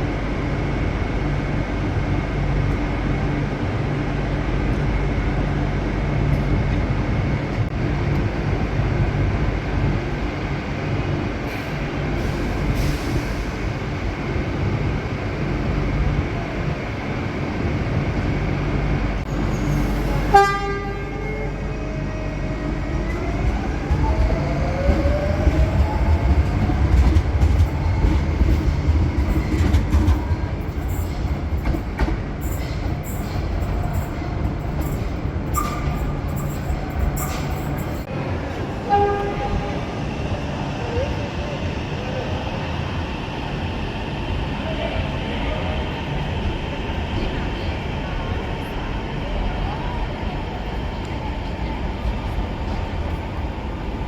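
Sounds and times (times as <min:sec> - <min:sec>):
passenger train running: 0:00.0 - 0:54.0
train horn toot: 0:20.3 - 0:21.6, 0:38.8 - 0:39.8.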